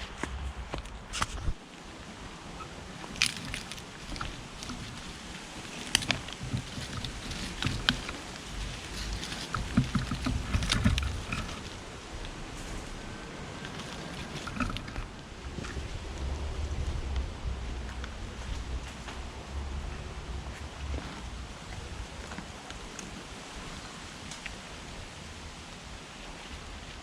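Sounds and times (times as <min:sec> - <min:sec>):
hands rustling in soil: 0:00.0 - 0:24.6
low uneven rumble: 0:00.0 - 0:27.0
potatoes knocking: 0:03.1 - 0:11.8.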